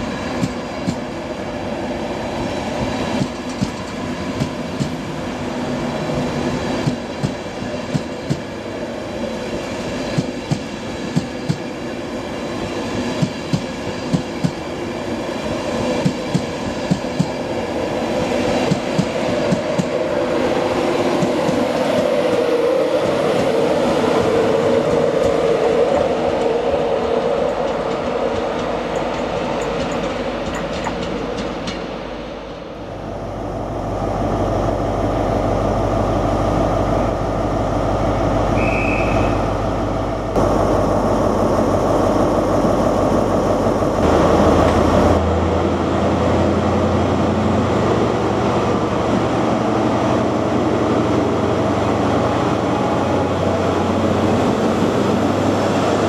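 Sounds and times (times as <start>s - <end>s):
train wheels clicking over rails: 0.0s - 1.2s, 2.6s - 5.2s, 6.7s - 8.7s, 9.9s - 11.9s, 12.6s - 14.7s, 15.5s - 32.2s
short beep: 38.6s - 39.4s.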